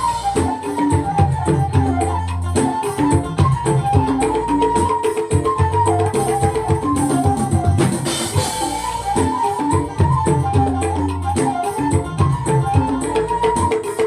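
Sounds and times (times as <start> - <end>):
rapid drumming: 0.0 - 14.0
high ornamented melody: 6.5 - 12.3.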